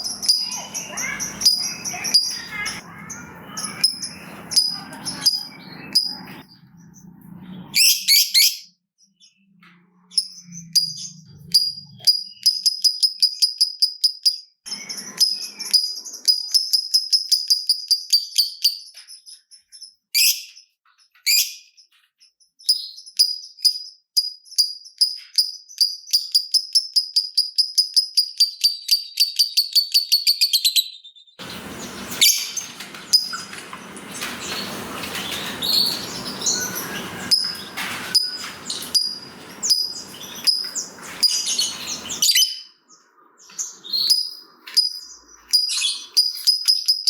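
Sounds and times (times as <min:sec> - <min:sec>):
harsh bird screeches: 0:00.0 - 0:06.4, 0:31.4 - 0:42.6
lovebird clicking chirps: 0:11.5 - 0:19.0, 0:22.7 - 0:30.4, 0:44.1 - 0:47.0.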